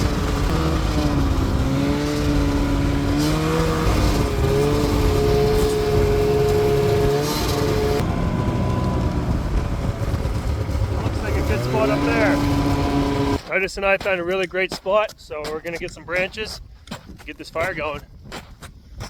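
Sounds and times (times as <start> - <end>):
snowmobile engine revving: 0.0 - 13.5.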